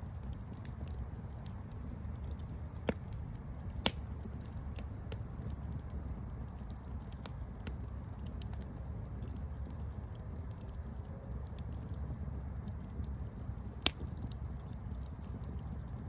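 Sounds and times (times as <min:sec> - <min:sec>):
burning wood crackling and popping: 0:00.0 - 0:16.0
campfire rumble: 0:00.0 - 0:16.0.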